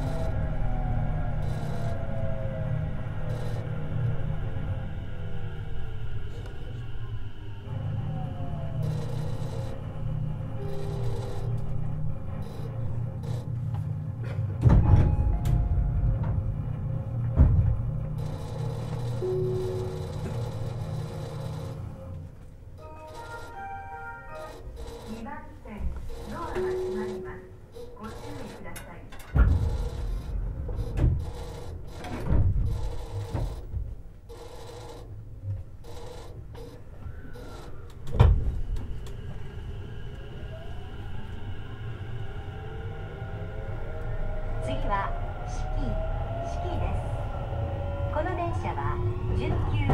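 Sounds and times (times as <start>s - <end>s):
train low hum: 0.0s - 49.9s
loud thump with rattle: 14.6s - 16.5s, 17.4s - 17.9s, 29.3s - 31.3s.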